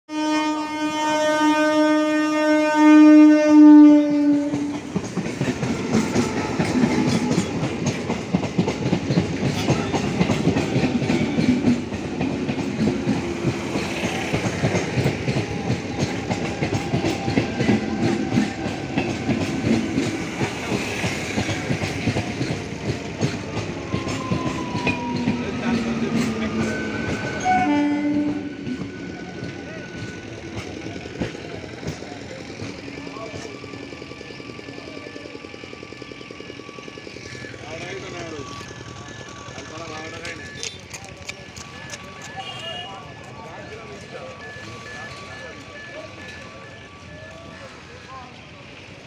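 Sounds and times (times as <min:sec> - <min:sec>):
train horn blast: 0:00.1 - 0:04.9, 0:06.0 - 0:07.3, 0:27.3 - 0:28.5
wheels clattering over rails: 0:04.5 - 0:49.0.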